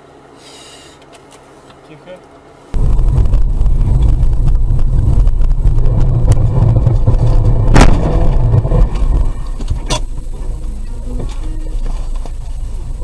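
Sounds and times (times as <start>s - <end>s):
car engine rumble: 2.7s - 13.0s
road noise: 2.7s - 13.0s.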